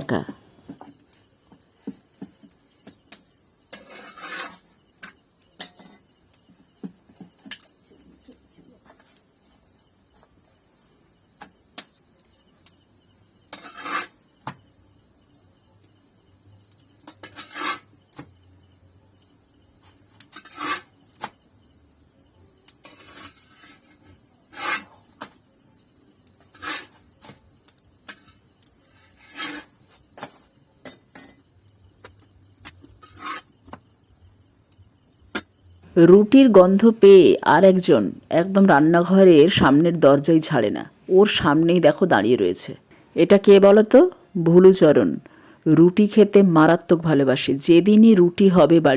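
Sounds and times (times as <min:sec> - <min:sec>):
scraping and rubbing on griddle: 0:03.8 - 0:04.8, 0:13.5 - 0:14.2, 0:32.9 - 0:33.6.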